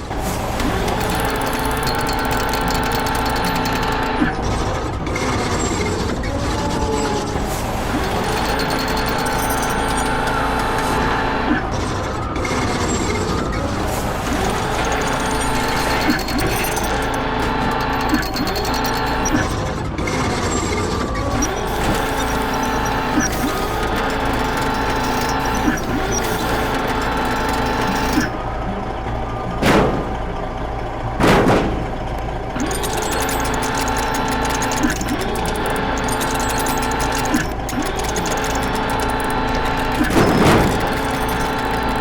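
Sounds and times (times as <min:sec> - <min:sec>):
cartoon machine running: 0:00.5 - 0:04.4, 0:07.4 - 0:11.4, 0:13.6 - 0:19.6, 0:21.2 - 0:28.4, 0:31.2 - 0:42.0.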